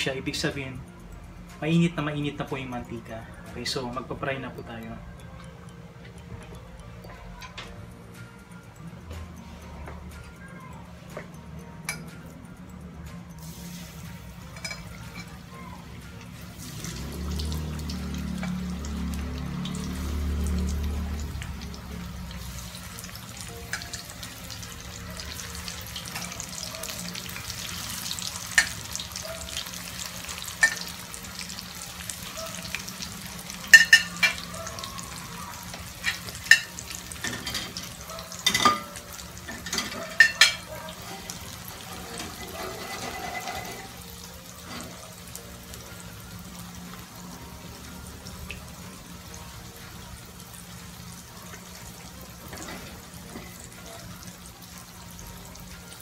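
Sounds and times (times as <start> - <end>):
tofu sizzling in oil: 13.4 - 56.0
metal tongs clicking against pan: 25.2 - 29.7, 30.4 - 30.9, 33.7 - 34.4, 35.7 - 41.1.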